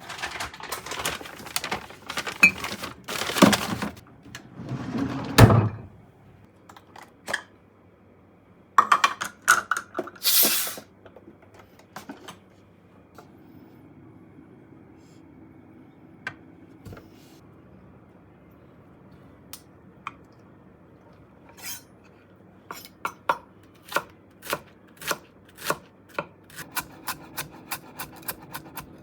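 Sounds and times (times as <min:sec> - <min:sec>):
containers clattering and knocking: 0:00.0 - 0:04.0
rustling: 0:00.0 - 0:04.0.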